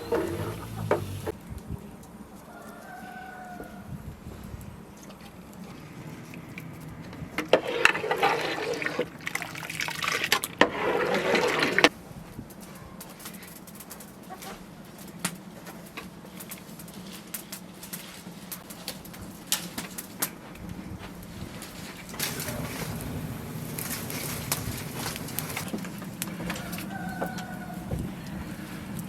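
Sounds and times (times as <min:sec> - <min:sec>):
liquid being poured: 0:07.5 - 0:11.9.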